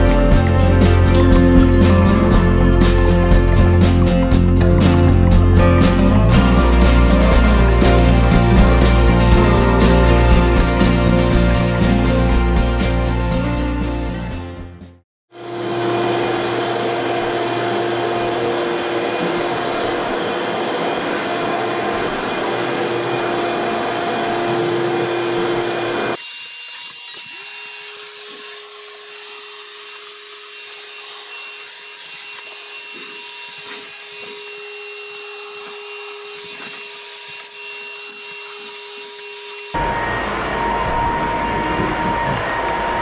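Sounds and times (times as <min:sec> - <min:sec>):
electric floor sander running: 0:00.0 - 0:13.3, 0:15.4 - 0:43.0
machine whine: 0:00.0 - 0:43.0.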